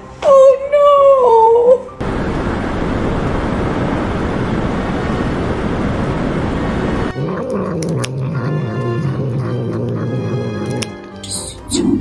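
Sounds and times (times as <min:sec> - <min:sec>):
loud rushing noise: 0:02.0 - 0:07.2.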